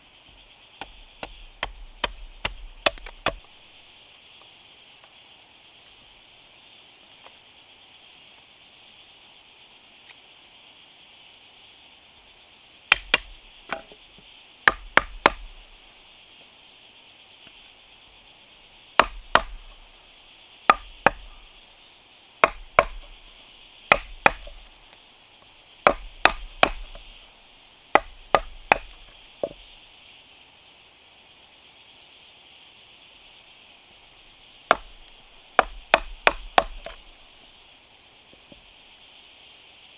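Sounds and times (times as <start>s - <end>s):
steady high hiss: 0.0s - 39.9s
tool knocking on wood: 28.0s - 29.6s.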